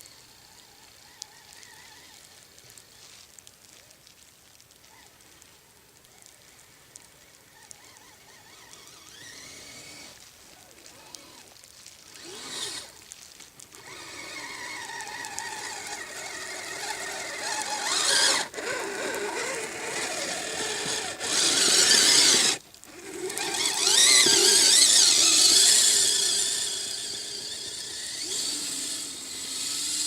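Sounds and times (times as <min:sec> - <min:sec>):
electric motors whining: 0:07.6 - 0:10.2, 0:10.8 - 0:11.5, 0:12.1 - 0:13.0, 0:13.8 - 0:30.0.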